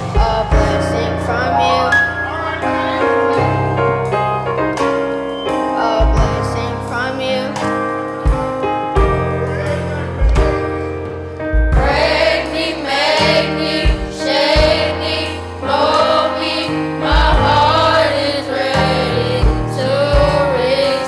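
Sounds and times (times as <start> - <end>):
voices singing: 0.0 - 3.7, 11.8 - 21.0
bass line: 0.0 - 21.0
keyboard chords: 0.0 - 21.0.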